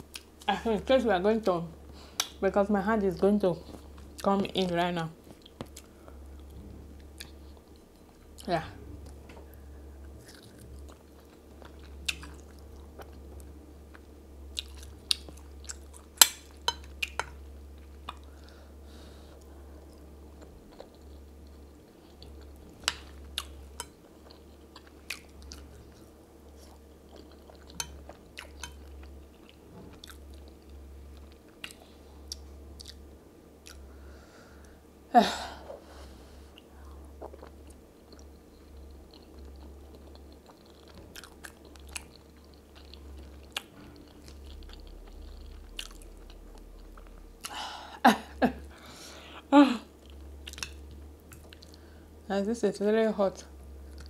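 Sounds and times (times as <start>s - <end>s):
steady low hum: 0.0s - 54.0s
close chewing and biting: 20.4s - 30.5s, 37.2s - 47.6s.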